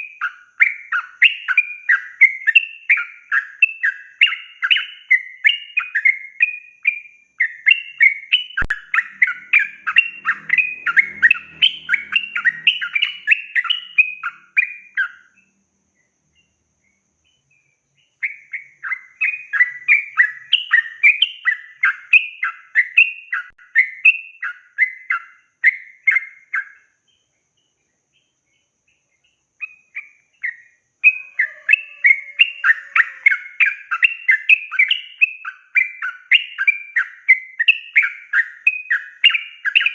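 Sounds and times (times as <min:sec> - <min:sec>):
bird bubbly chattering song: 0:07.4 - 0:15.4.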